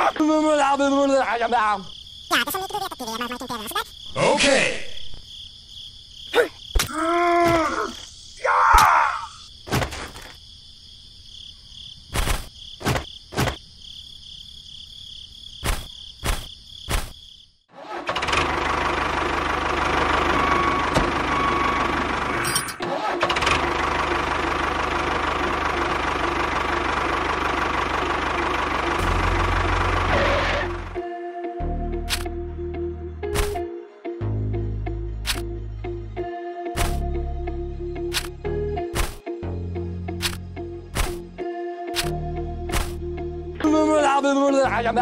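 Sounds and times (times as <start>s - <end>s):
insect-like chirring: 0.0s - 17.7s
tractor engine running: 17.8s - 31.0s
sharp clicks: 32.1s - 32.3s, 35.2s - 35.5s, 38.1s - 39.2s.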